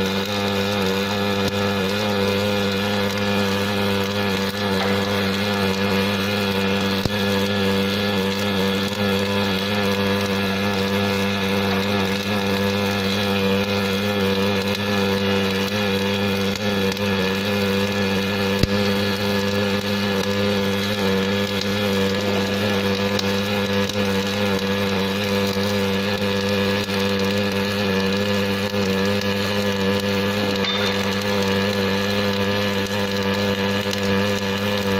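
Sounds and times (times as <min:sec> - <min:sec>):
welding machine buzzing hum: 0:00.0 - 0:34.9.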